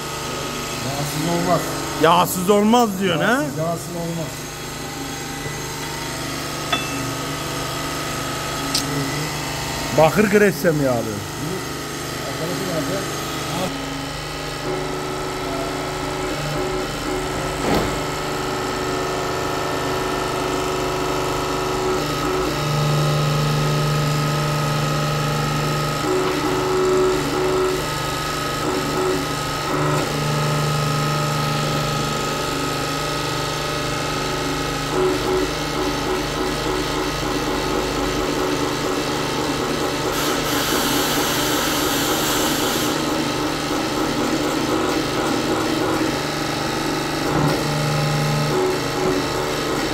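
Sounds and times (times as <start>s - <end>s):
machinery humming: 0.0s - 13.8s.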